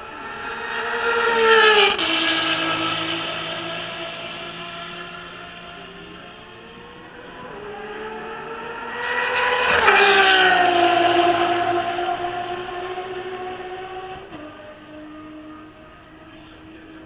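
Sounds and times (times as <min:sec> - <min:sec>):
race car passing: 0:00.0 - 0:17.0.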